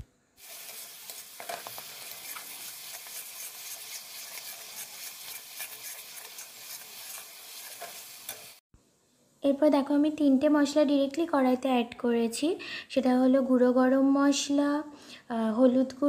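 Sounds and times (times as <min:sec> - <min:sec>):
metal spatula scraping pan: 0:00.4 - 0:08.6
paste sizzling in hot oil: 0:00.4 - 0:08.6.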